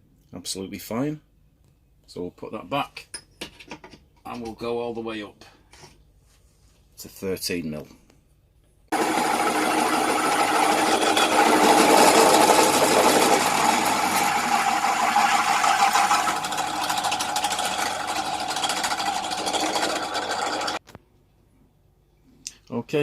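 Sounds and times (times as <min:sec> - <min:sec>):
drill bit grinding through steel: 0:08.9 - 0:20.8
drill motor hum: 0:08.9 - 0:20.8.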